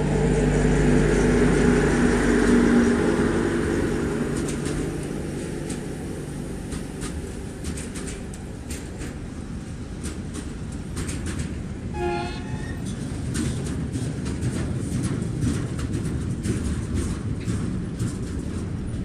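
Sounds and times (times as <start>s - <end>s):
freight train rumbling past: 0.0s - 19.0s
wheel clacks over rail joints: 2.4s - 19.0s
train horn toot: 11.9s - 13.0s.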